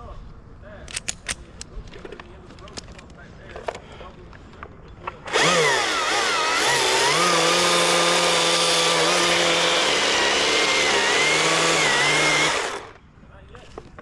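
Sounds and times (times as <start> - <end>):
two-stroke chainsaw engine: 5.3 - 13.0.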